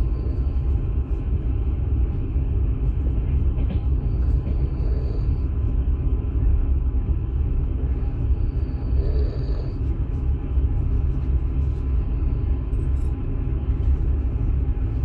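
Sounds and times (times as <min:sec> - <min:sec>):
moving train rumble: 0:00.0 - 0:15.0.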